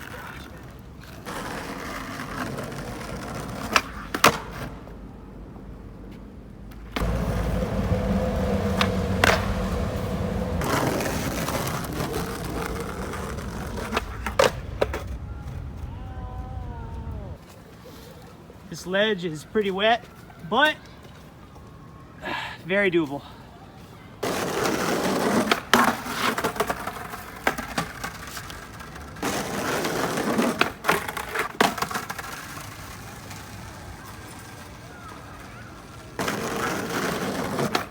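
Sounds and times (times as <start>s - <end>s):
skateboard wheels rolling on wet pavement: 0.0s - 5.2s, 6.7s - 18.1s, 24.2s - 37.9s
skateboard clacks: 6.7s - 17.0s, 24.2s - 37.9s.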